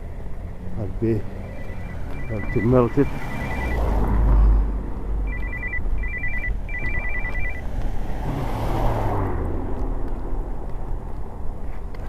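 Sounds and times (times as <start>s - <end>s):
low vehicle rumble: 0.0s - 12.0s
traffic noise: 0.0s - 12.0s
electronic two-tone trilling beep: 1.4s - 3.9s, 5.3s - 7.6s.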